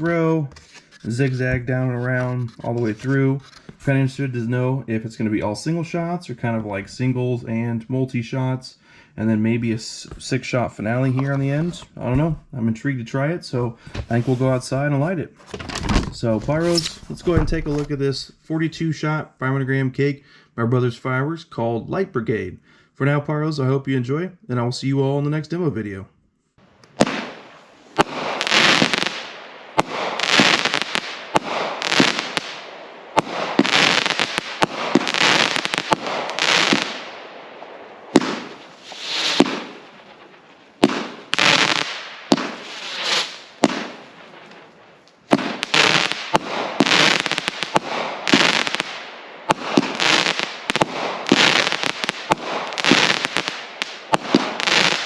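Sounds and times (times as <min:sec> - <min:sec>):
firework launch thumps: 0:13.9 - 0:14.5, 0:15.5 - 0:18.0, 0:38.1 - 0:44.6
firework crackling: 0:26.9 - 0:55.0.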